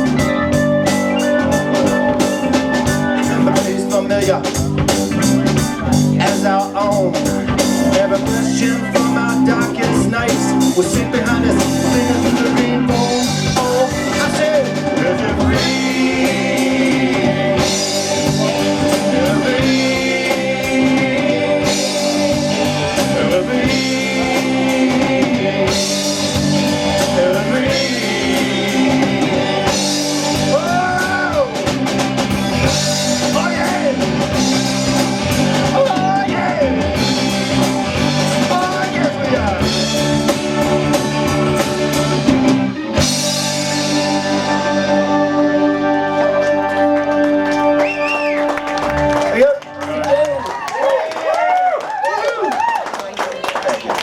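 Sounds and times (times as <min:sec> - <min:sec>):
person singing: 0:00.0 - 0:32.0, 0:32.6 - 0:34.6, 0:35.6 - 0:40.2
rock band playing: 0:00.0 - 0:54.0.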